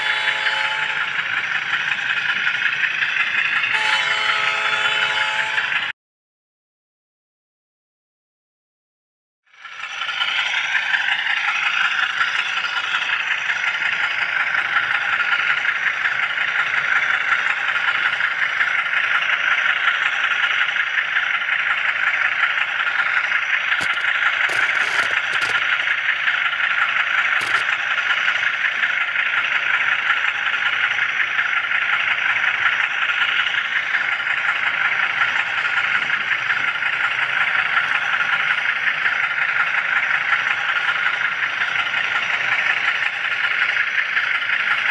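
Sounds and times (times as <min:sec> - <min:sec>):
model train rattling whir: 0:09.5 - 0:44.9
sharp clicks: 0:23.8 - 0:25.8, 0:27.4 - 0:27.8.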